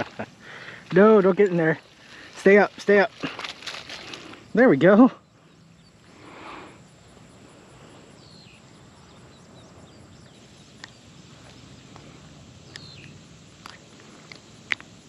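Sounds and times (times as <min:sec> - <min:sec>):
bird chirps: 0:05.0 - 0:11.8, 0:12.6 - 0:14.5.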